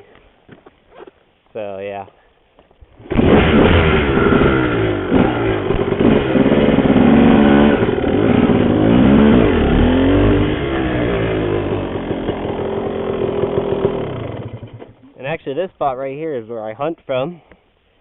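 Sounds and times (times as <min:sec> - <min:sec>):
dirt bike engine revving: 0:03.0 - 0:15.0.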